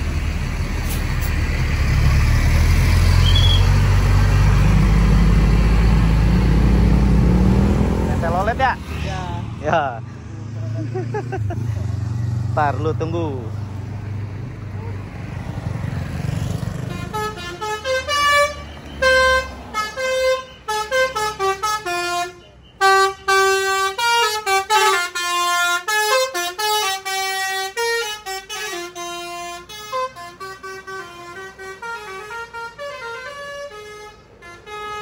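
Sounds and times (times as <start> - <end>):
bus multi-tone horn tune: 3.1 - 3.8, 16.6 - 35.0.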